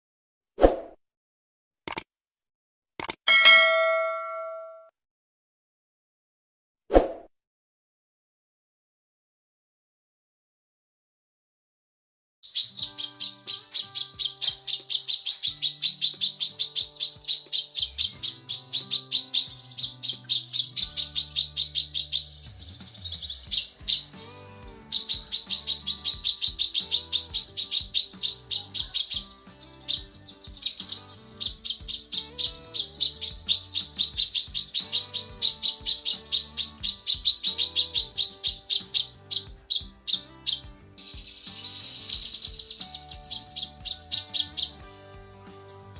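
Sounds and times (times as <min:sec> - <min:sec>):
bird rapid high chirps: 0:03.3 - 0:04.8, 0:12.4 - 0:45.9
quiet music track: 0:12.5 - 0:45.9.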